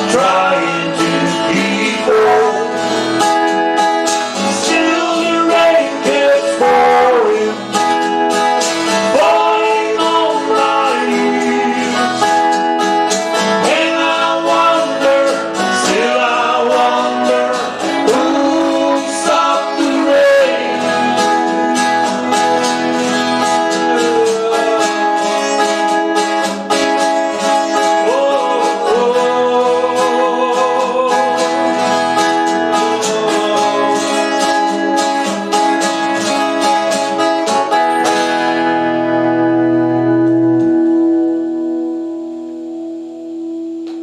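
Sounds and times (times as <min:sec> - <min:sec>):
person singing: 0:00.0 - 0:38.6
acoustic guitar strumming: 0:00.0 - 0:44.0.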